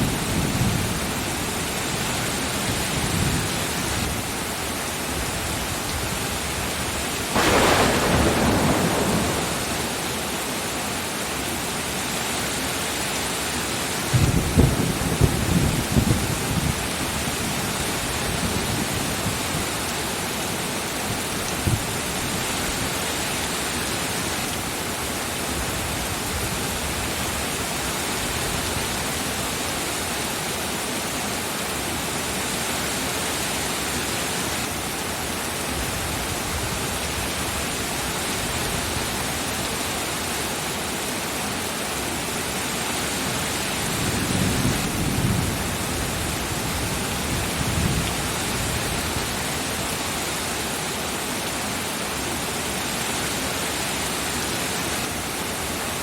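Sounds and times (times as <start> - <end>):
heavy rain: 0.0 - 56.0
thunder rumbling: 7.3 - 11.2, 14.1 - 16.9.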